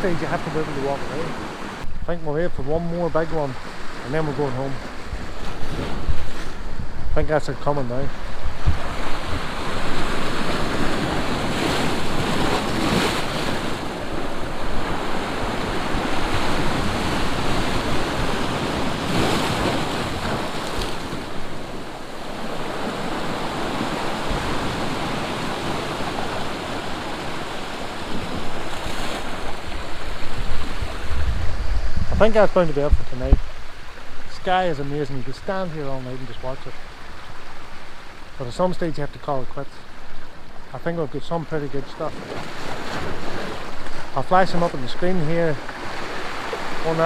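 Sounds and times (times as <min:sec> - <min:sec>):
sea surf on rocky shore: 0:00.0 - 0:47.0
wind buffeting microphone: 0:04.8 - 0:34.3.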